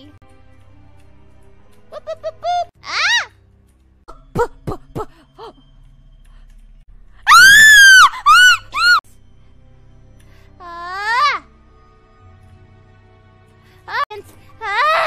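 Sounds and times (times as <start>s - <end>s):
woman screaming: 2.8s - 3.3s, 7.3s - 9.0s, 10.8s - 11.4s, 14.6s - 15.0s.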